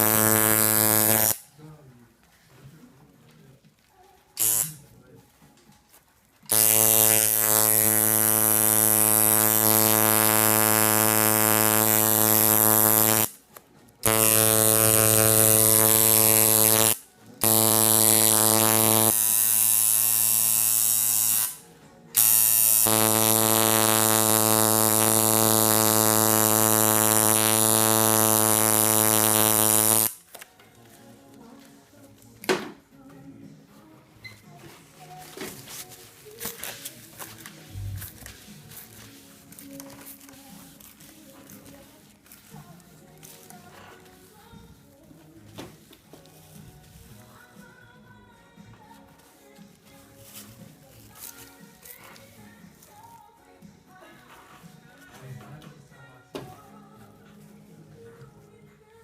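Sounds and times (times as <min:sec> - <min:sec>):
tattoo machine buzzing: 0:00.0 - 0:01.4, 0:04.4 - 0:04.8, 0:06.5 - 0:13.4, 0:14.0 - 0:21.6, 0:22.2 - 0:30.2.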